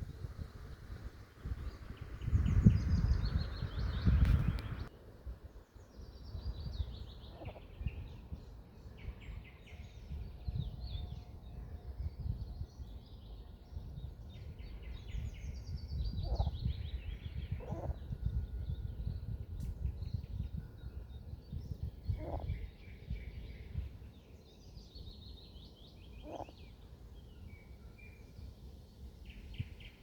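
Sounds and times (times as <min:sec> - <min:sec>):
steady low rumble: 0:00.0 - 0:05.4
songbirds singing: 0:00.0 - 0:30.0.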